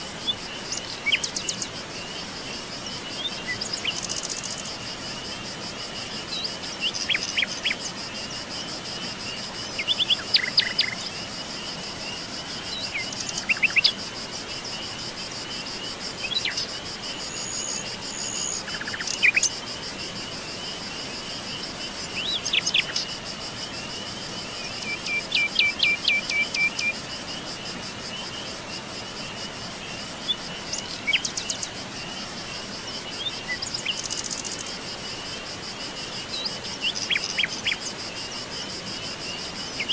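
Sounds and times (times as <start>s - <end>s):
insects chorus: 0.0s - 39.9s
wild birds chirping: 6.0s - 39.9s.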